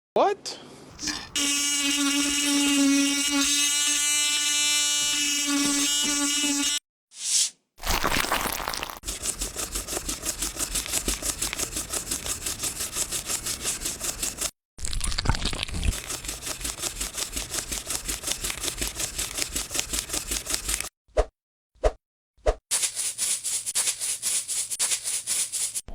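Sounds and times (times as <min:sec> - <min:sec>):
brush scrubbing a coin: 0:01.0 - 0:06.8, 0:07.8 - 0:14.6, 0:15.9 - 0:20.9, 0:22.7 - 0:25.8.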